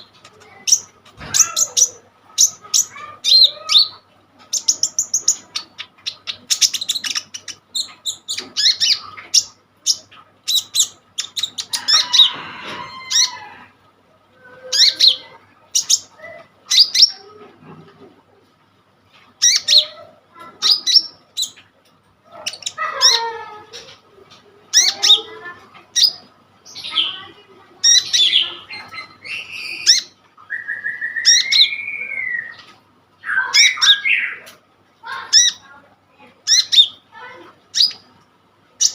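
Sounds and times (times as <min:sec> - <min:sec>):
sunbird chirps and trills: 0:00.0 - 0:12.3, 0:24.7 - 0:34.5, 0:36.4 - 0:38.1
buzzy rasping bird phrase: 0:00.0 - 0:13.7, 0:19.4 - 0:38.2.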